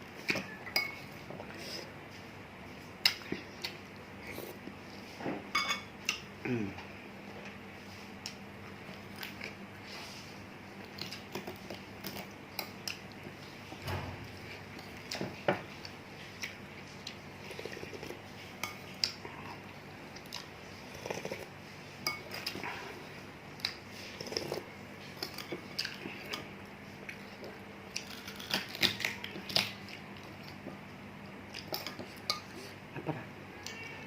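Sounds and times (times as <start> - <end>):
spoon clinking against a bowl: 0.6 - 1.0, 5.5 - 5.9
chewing: 14.7 - 21.5, 22.1 - 30.8.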